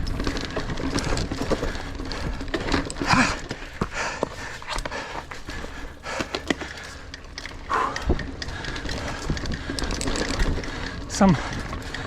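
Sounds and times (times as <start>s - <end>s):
bike rattling clicks and knocks: 0.0s - 12.0s
bike tyre rumble on dirt: 0.0s - 12.0s.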